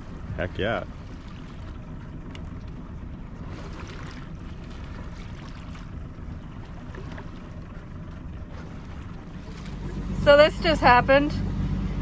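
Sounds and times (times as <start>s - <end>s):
wind: 0.0s - 12.0s
low rumble: 9.3s - 12.0s
hissing washes of water: 9.4s - 12.0s.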